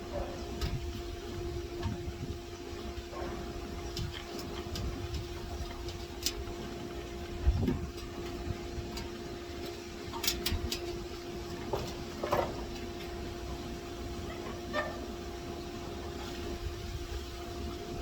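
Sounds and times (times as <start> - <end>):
steady hum: 0.0 - 18.0
metallic clicks and knocks: 7.7 - 12.9.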